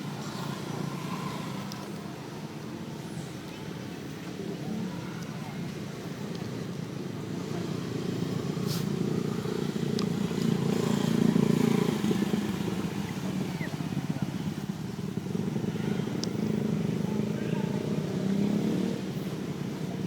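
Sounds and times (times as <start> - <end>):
faint sharp clicks: 1.6 - 2.0.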